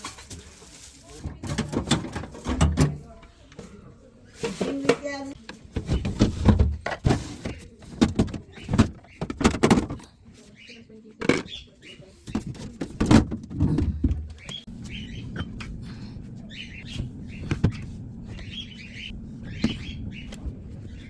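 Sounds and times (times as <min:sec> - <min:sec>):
containers knocking and clattering: 0:01.2 - 0:03.0, 0:04.4 - 0:10.1, 0:12.4 - 0:14.6
steady low hum: 0:13.4 - 0:21.0.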